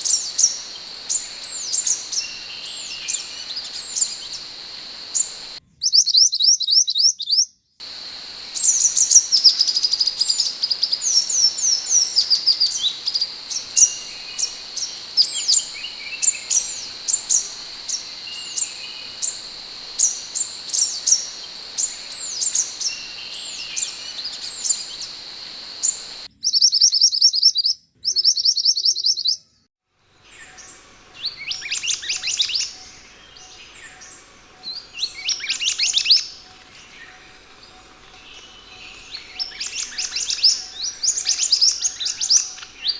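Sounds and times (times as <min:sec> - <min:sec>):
bird chirping high falling runs: 0:00.0 - 0:05.6, 0:07.8 - 0:26.3
steady high hiss: 0:00.0 - 0:05.6, 0:07.8 - 0:26.3, 0:30.1 - 0:42.9.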